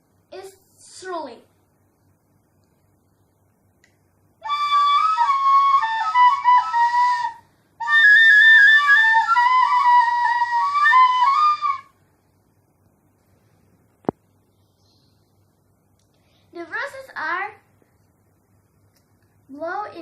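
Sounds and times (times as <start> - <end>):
bamboo flute melody: 4.4 - 11.9.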